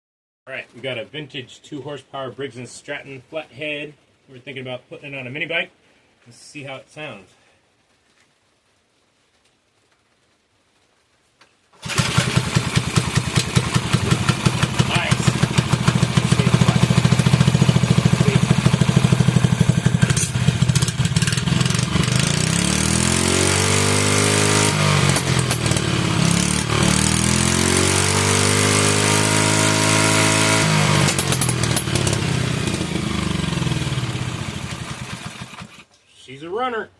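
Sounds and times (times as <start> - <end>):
small engine running and revving: 11.8 - 35.8.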